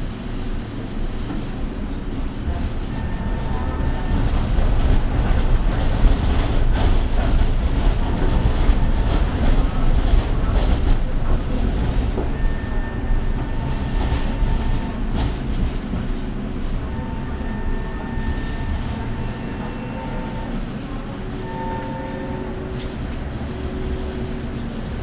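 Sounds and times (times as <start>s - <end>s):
tram rumbling along track: 0.0s - 25.0s
wheels clicking on rails: 2.5s - 21.8s.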